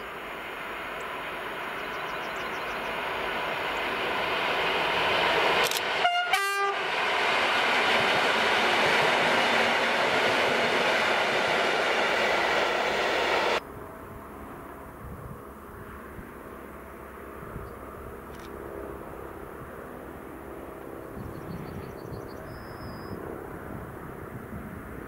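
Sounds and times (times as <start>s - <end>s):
electric train passing: 0.0s - 25.0s
two-tone horn blast: 6.0s - 6.9s.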